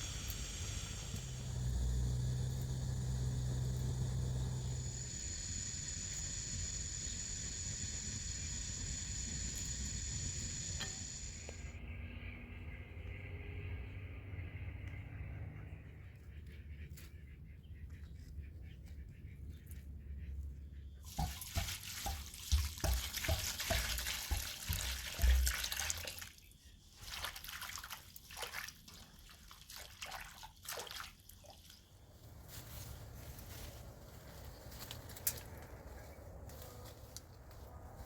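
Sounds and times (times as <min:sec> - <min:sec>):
water running from a tap: 0:21.1 - 0:26.3.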